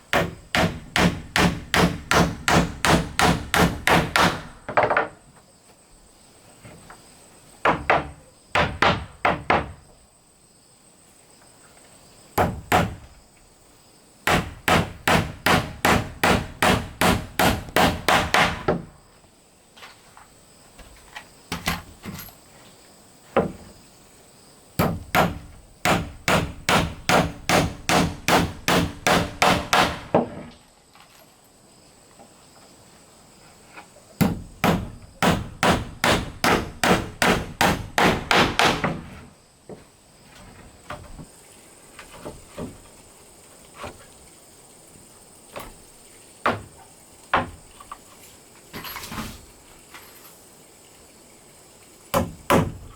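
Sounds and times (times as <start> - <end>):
hammer striking wood: 0.1 - 5.1, 7.6 - 9.8, 12.4 - 13.1, 14.3 - 18.9, 24.8 - 30.4, 34.2 - 39.1, 52.1 - 52.9.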